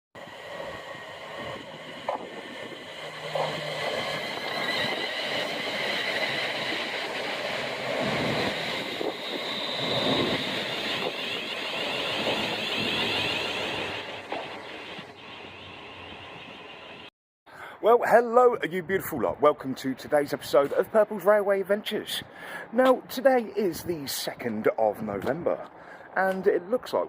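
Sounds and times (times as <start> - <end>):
train passing on rails: 0.2 - 17.1.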